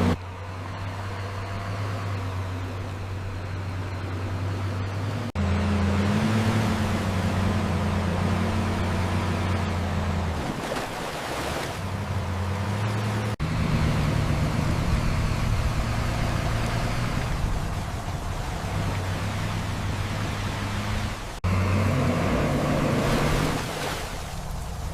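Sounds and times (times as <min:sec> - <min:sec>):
diesel truck engine droning: 0:00.0 - 0:24.9
another engine running: 0:11.7 - 0:23.6.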